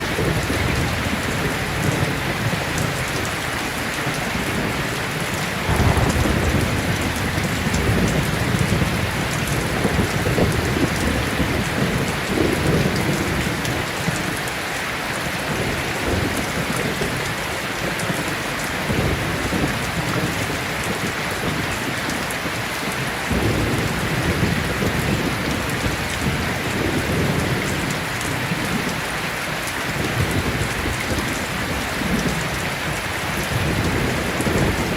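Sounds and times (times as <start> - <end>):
heavy rain falling: 0.0 - 34.9
thunder rumbling: 0.1 - 14.3, 23.3 - 29.0, 29.9 - 34.9.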